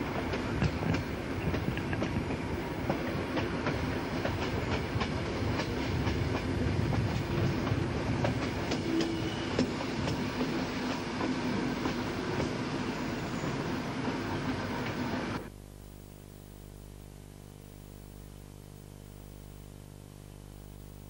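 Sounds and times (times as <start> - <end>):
train carriage rumbling: 0.0 - 15.5.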